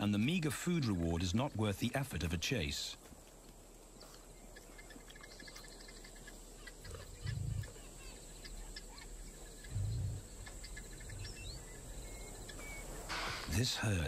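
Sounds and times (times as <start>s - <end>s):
faint insect hum: 0.0s - 14.0s
birds chirping and whistling: 4.1s - 13.9s.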